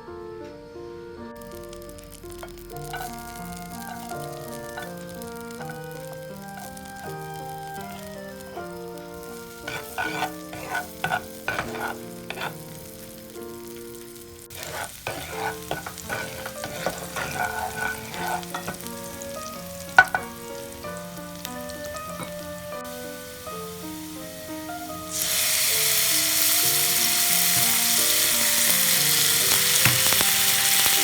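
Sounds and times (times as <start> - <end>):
soft background music: 0.0 - 31.0
utensil scraping a pan: 1.4 - 8.1, 9.4 - 13.2, 14.5 - 20.8, 21.7 - 22.5, 25.1 - 31.0
food frying in a pan: 1.4 - 31.0.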